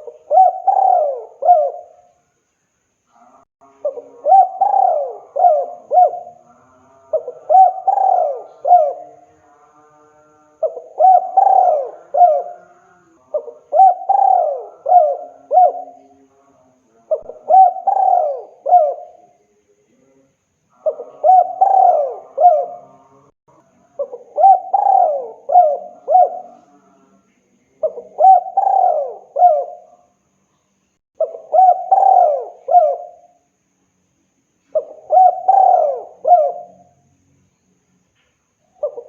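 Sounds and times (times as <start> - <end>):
dove cooing: 0.0 - 2.1, 3.8 - 6.4, 7.1 - 9.2, 10.6 - 16.0, 17.1 - 19.3, 20.8 - 23.0, 24.0 - 26.8, 27.8 - 30.0, 31.2 - 33.4, 34.7 - 36.9, 38.7 - 39.0.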